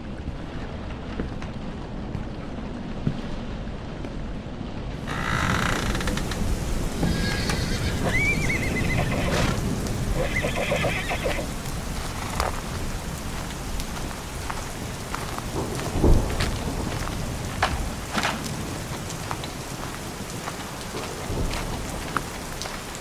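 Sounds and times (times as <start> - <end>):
steady rain: 0.0 - 23.0
horse whinnying: 7.0 - 11.6.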